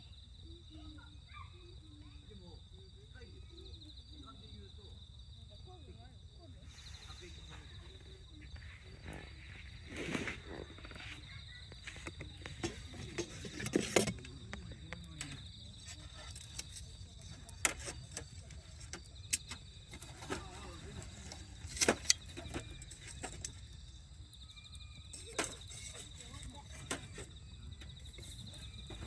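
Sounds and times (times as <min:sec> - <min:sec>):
campfire crackling and popping: 0:06.7 - 0:29.0.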